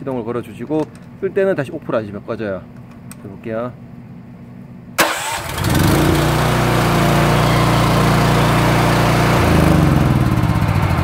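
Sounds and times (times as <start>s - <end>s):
pressure washer petrol engine running: 5.0s - 11.0s.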